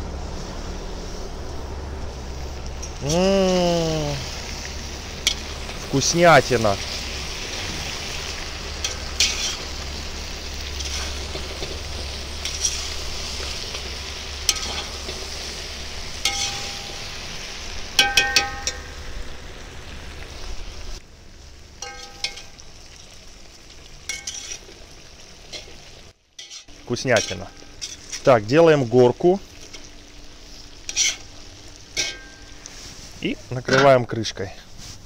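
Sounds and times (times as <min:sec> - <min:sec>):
food sizzling in a pot: 0:00.0 - 0:35.0
metal spatula scraping a pot: 0:08.8 - 0:09.8, 0:10.6 - 0:15.4, 0:16.2 - 0:17.2, 0:21.8 - 0:22.5, 0:24.1 - 0:24.7, 0:26.4 - 0:28.3, 0:29.5 - 0:33.1.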